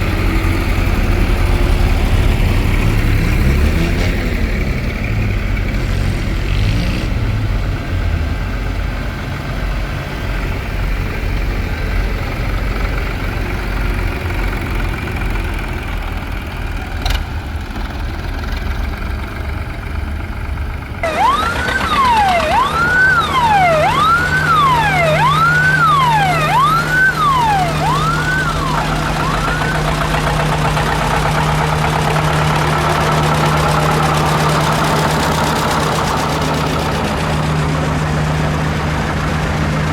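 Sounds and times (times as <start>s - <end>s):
engines rumbling: 0.0s - 39.9s
siren wailing: 21.0s - 30.5s.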